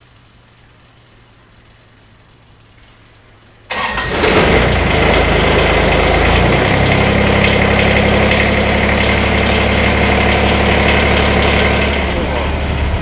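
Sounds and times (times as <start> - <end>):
tractor diesel engine: 3.7 - 13.0.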